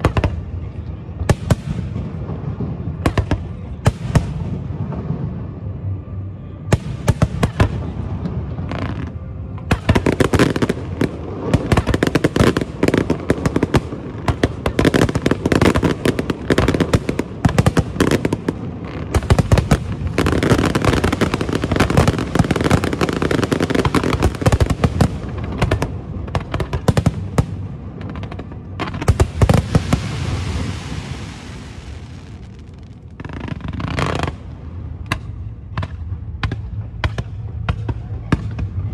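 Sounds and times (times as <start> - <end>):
fireworks bangs and crackling: 0.0 - 6.0, 6.6 - 38.9
rushing hiss: 29.6 - 32.2.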